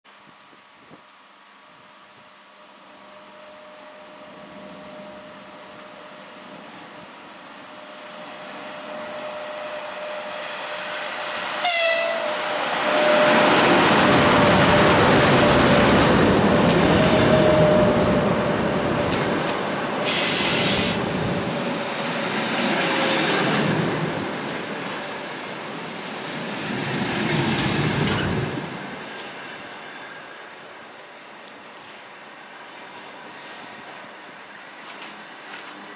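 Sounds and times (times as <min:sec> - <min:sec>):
train rumbling past on rails: 0:02.6 - 0:35.9
locomotive horn toot: 0:11.6 - 0:13.6
brief hiss: 0:20.0 - 0:21.0, 0:33.2 - 0:34.0.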